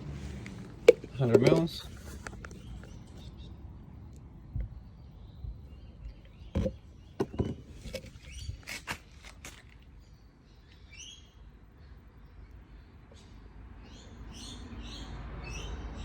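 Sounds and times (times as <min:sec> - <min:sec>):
bottle and cup knocking: 0:00.9 - 0:01.6, 0:06.5 - 0:08.1.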